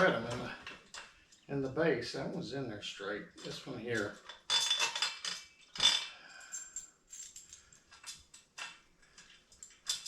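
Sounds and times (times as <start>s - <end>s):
metal bolts clinking and rattling: 3.4s - 10.0s.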